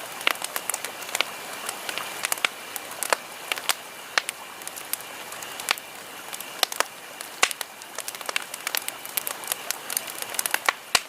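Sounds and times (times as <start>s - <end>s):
campfire crackling: 0.0s - 11.0s
fire hiss: 0.0s - 11.0s
wood pops and snaps: 6.6s - 11.0s.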